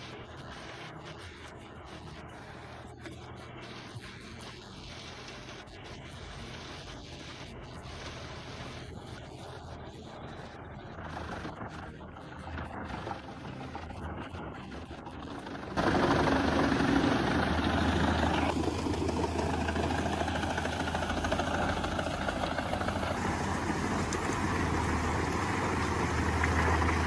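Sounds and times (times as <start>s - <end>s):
quiet mechanical noise: 0.0s - 27.0s
heavy machine engine humming: 7.5s - 27.0s.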